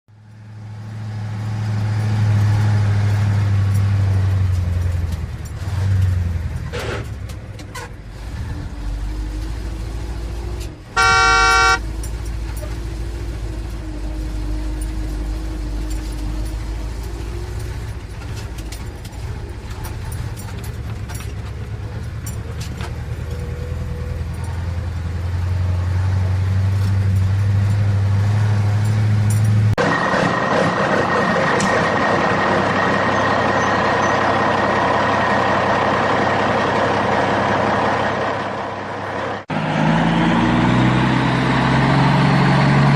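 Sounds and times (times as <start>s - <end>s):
low engine drone: 8.8s - 25.8s
vehicle horn honking: 11.0s - 11.8s.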